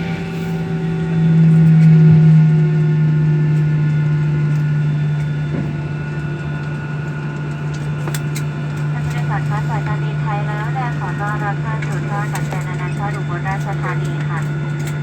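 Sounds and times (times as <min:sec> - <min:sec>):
jet engines humming: 0:00.0 - 0:15.0.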